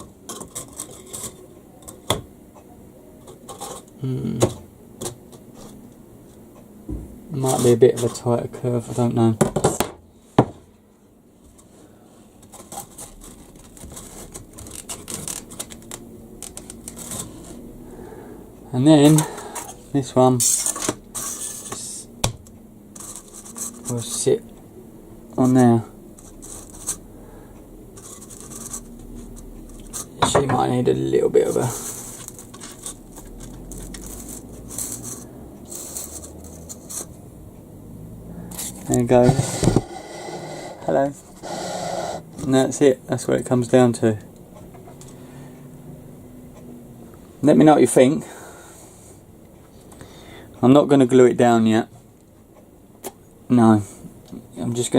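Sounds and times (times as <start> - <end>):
faint scraping and rustling: 0.3 - 2.0, 7.4 - 9.2, 11.4 - 17.7, 22.9 - 24.4, 25.4 - 27.1, 27.9 - 37.2, 38.5 - 42.6.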